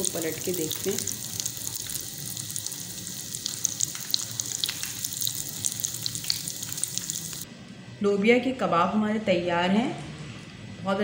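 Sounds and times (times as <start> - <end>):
food sizzling in hot oil: 0.0 - 7.4.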